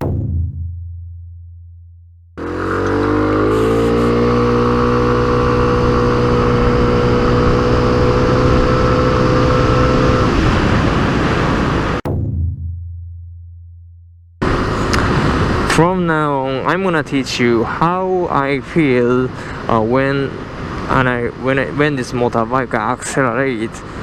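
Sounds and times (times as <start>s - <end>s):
scooter engine accelerating: 2.4s - 11.4s.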